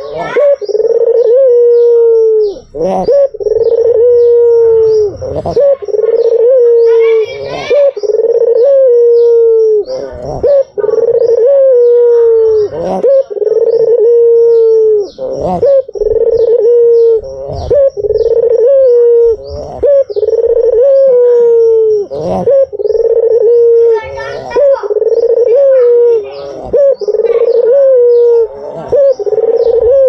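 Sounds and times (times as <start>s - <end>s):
dove cooing: 0.0s - 30.0s.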